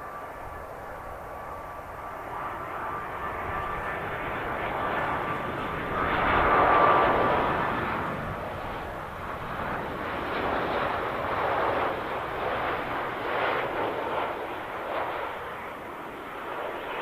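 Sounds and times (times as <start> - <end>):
airliner engine rumble: 0.0 - 17.0.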